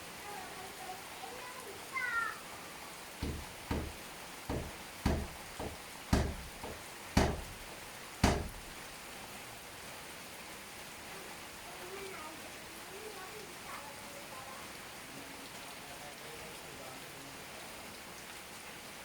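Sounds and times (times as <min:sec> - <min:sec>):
steady rain: 0:00.0 - 0:19.0
dull knocks: 0:03.2 - 0:08.9.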